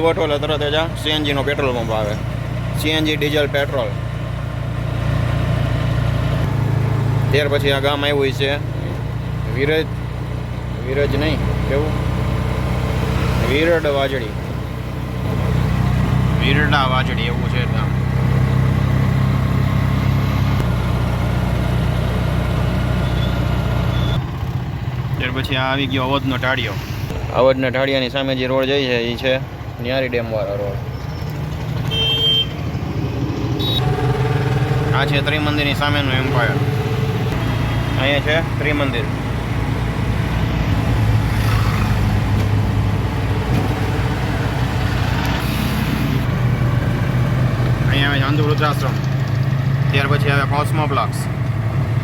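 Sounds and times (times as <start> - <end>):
road and wind noise: 0.0 - 52.0
vehicle engine running: 0.0 - 52.0.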